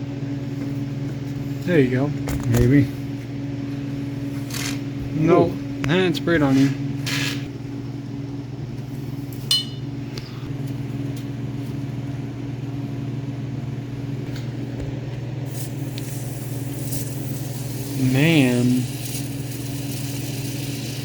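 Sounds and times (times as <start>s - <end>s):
low mechanical hum: 0.0s - 21.0s
sharp metallic clink: 9.5s - 9.9s.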